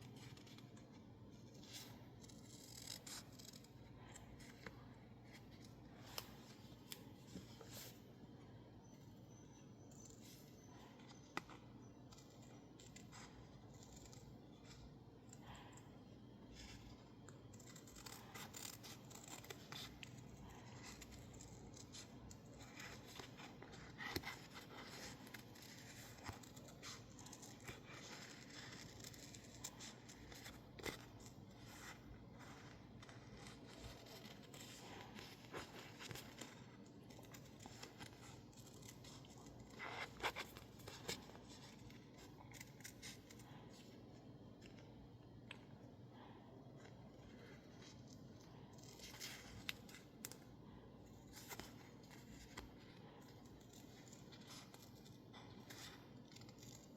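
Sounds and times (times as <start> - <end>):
scissors snipping paper: 0.1 - 7.0, 9.9 - 44.0, 46.9 - 56.9.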